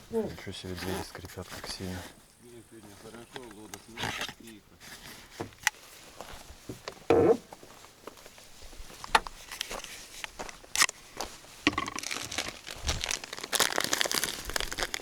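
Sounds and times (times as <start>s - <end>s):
packaging crinkling: 11.7s - 15.0s.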